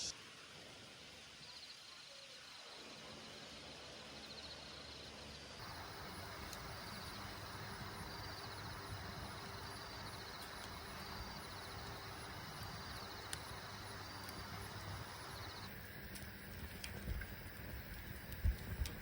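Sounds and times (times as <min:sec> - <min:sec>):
insect trilling: 0:05.6 - 0:18.5.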